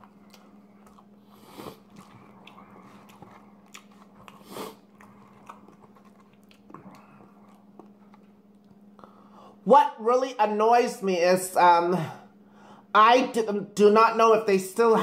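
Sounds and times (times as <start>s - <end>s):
person chewing food: 0.0s - 9.4s
faint steady hum: 0.0s - 15.0s.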